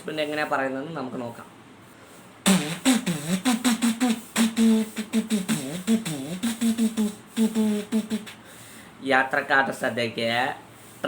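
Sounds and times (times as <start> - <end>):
mouth pops and clicks: 2.4 - 8.4.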